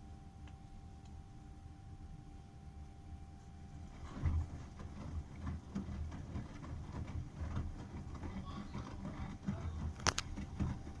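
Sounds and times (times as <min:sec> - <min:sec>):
washing machine drum tumbling: 0:03.8 - 0:11.0.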